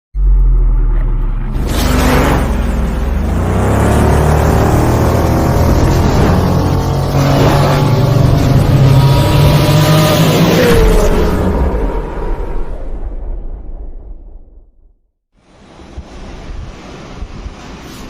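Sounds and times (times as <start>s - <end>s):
motorcycle engine revving: 0.2s - 12.8s.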